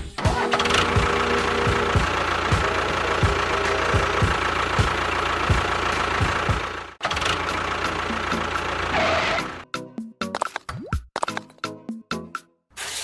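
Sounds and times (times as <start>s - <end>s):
tractor engine idling: 0.2s - 9.6s.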